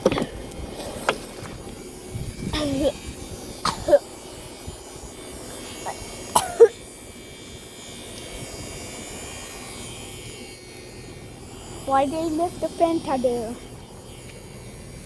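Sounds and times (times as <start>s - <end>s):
child coughing: 2.5s - 3.0s, 3.6s - 4.1s, 5.9s - 6.8s.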